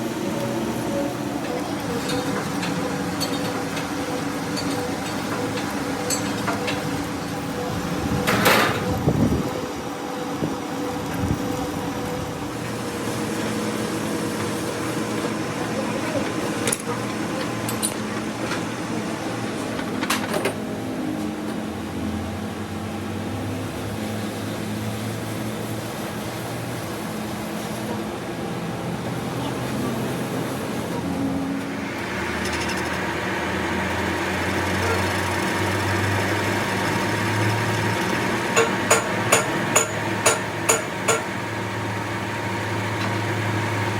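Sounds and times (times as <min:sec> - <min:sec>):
workshop machinery humming: 0:00.0 - 0:43.9
sharp metallic knocks: 0:38.6 - 0:41.4.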